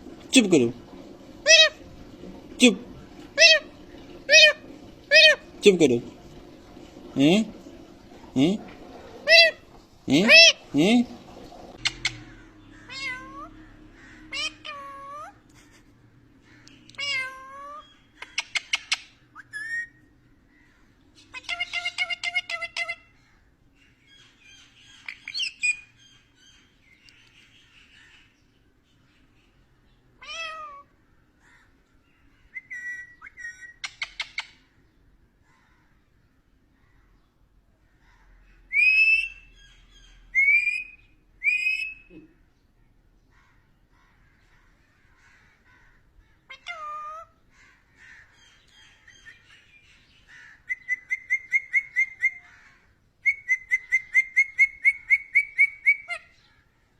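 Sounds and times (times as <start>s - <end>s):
parakeet meow-like calls: 11.8s - 15.4s, 17.0s - 18.4s, 30.2s - 31.0s, 45.7s - 47.4s
parakeet whistling calls: 18.3s - 20.0s, 32.5s - 34.6s, 38.7s - 42.1s, 50.6s - 52.4s, 53.2s - 56.2s.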